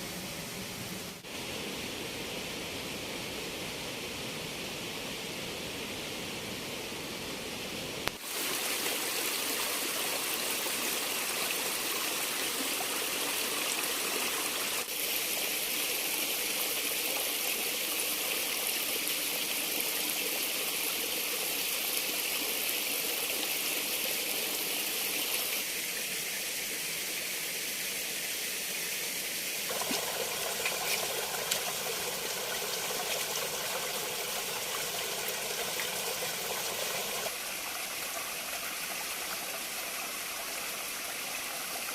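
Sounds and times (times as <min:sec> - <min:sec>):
water rushing: 0:29.6 - 0:41.9.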